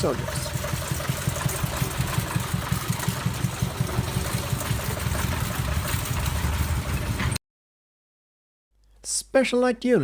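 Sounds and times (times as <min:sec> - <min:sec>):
small engine chugging: 0:00.0 - 0:07.4.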